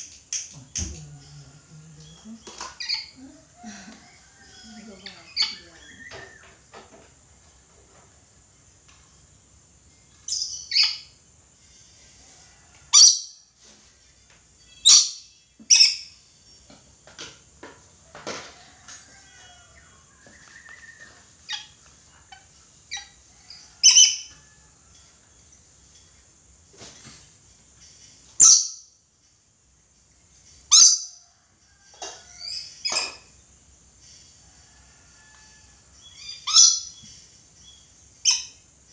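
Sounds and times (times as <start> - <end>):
parrot shrill screeches: 36.2 - 36.9.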